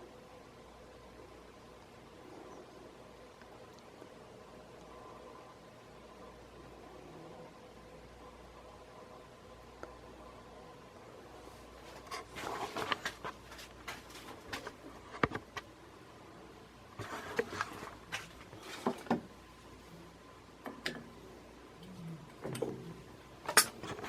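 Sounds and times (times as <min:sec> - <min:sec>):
faint steady hum: 0:00.0 - 0:24.0
handling clicks taps and rustles: 0:11.9 - 0:15.7.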